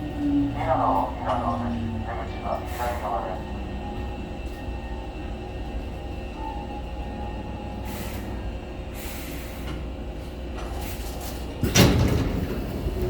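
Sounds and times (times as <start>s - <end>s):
train humming: 0.0s - 13.0s
sliding doors opening: 9.3s - 13.0s.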